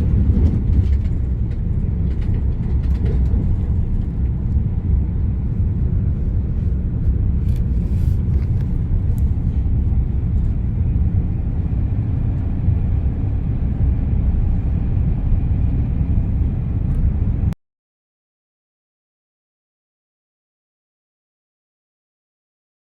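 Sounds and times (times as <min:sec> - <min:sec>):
car cabin road and engine rumble: 0:00.0 - 0:17.6.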